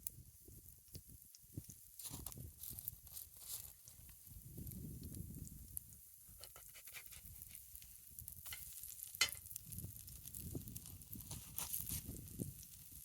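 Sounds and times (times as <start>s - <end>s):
campfire crackling: 0.0s - 13.0s
sharp fire pops: 4.0s - 13.0s.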